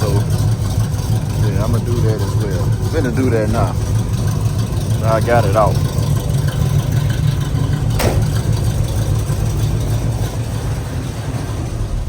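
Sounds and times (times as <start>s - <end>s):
car engine idling: 0.0s - 12.0s
sharp click: 8.0s - 8.4s.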